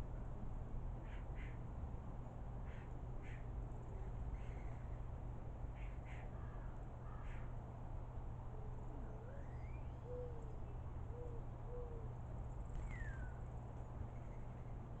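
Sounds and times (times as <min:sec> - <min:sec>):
bird hooting coo: 0:08.5 - 0:12.2, 0:12.8 - 0:13.4
bird whistled slurs: 0:12.8 - 0:13.4.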